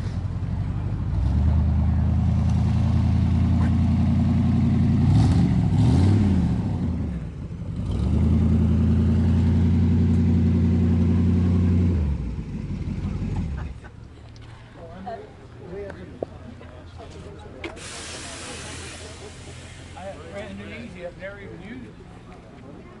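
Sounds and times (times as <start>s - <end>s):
car engine idling and revving: 0.0s - 14.4s.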